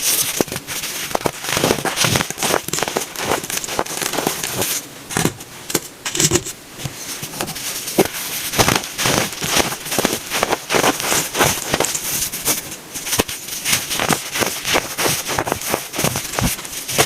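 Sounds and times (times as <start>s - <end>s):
baking soda crunching: 0.0s - 4.8s, 7.5s - 17.0s.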